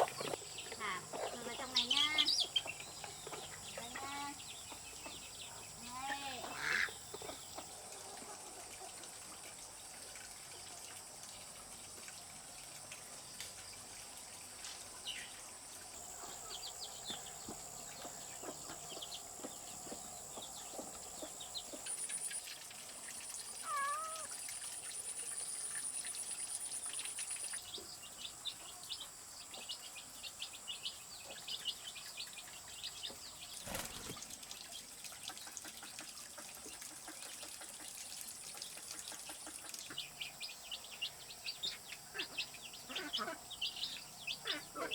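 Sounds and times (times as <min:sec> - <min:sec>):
insect chirps and clicks: 0:11.4 - 0:29.1
cat meow: 0:23.6 - 0:24.3.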